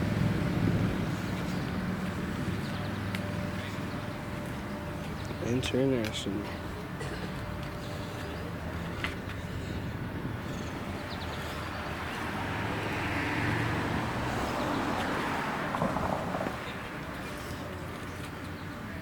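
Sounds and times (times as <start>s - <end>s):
vehicle driving past: 0.0s - 5.1s, 10.3s - 18.2s.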